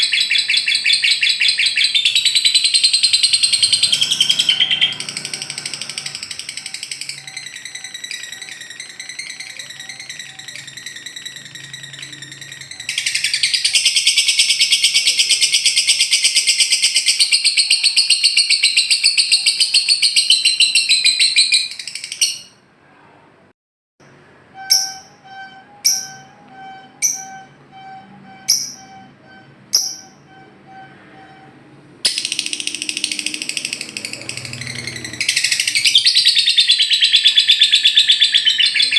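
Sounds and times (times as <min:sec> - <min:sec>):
lovebird rattling trill: 0:00.2 - 0:19.2, 0:29.7 - 0:30.2
faint repeating tones: 0:24.0 - 0:34.9.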